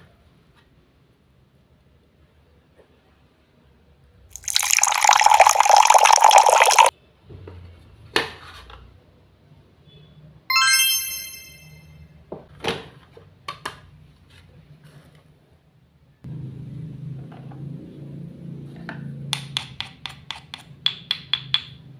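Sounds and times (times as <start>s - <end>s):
water running in a stream: 4.4s - 6.9s
bell-like chime: 10.5s - 12.0s.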